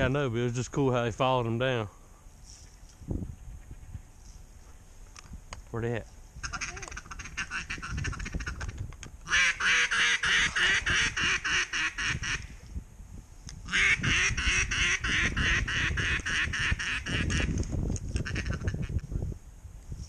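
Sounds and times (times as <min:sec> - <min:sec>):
duck quacking: 0:06.4 - 0:08.6, 0:09.3 - 0:12.5, 0:13.7 - 0:17.5, 0:18.2 - 0:18.9.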